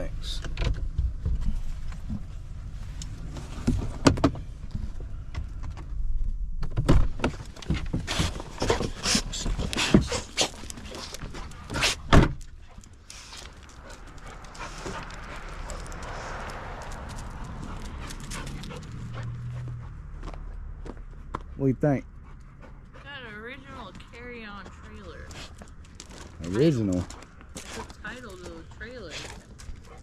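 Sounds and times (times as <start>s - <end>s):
dog moving about: 7.3s - 19.9s, 25.3s - 28.6s
dog panting: 8.1s - 20.0s, 22.0s - 23.8s, 26.4s - 30.0s.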